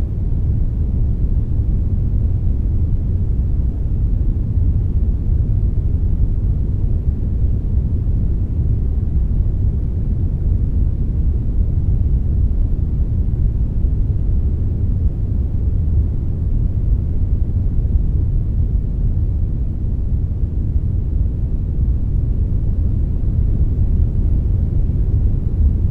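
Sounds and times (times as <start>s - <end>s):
bass-heavy noise hiss: 10.0s - 25.9s.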